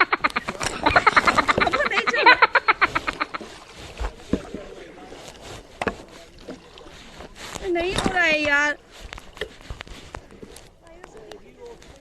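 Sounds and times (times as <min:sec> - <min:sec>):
person laughing hard: 0:00.0 - 0:03.4
kayak paddling: 0:00.0 - 0:12.0.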